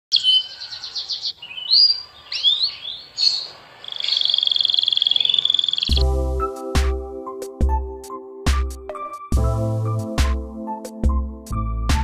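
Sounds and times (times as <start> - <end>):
birds trilling and whistling: 0.1 - 6.0.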